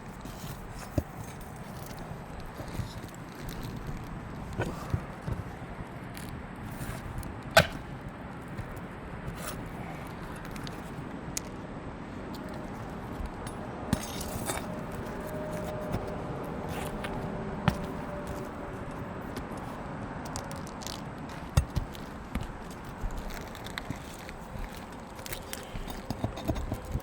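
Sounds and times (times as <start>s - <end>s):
shingles being pried and lifted: 0.1s - 11.6s, 12.3s - 27.0s
sharp clicks and scrapes: 12.3s - 27.0s.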